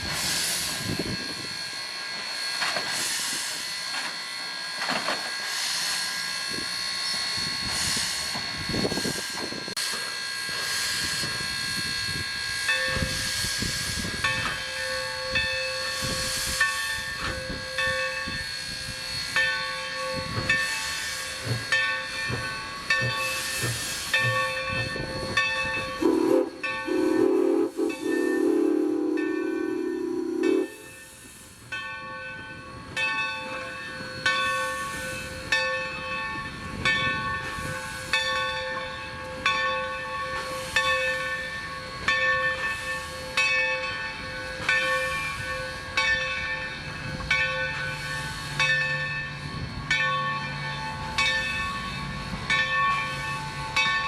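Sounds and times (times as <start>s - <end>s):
steam locomotive hissing: 0.0s - 54.0s
locomotive bell ringing: 11.4s - 54.0s
steam whistle blowing: 23.3s - 31.2s.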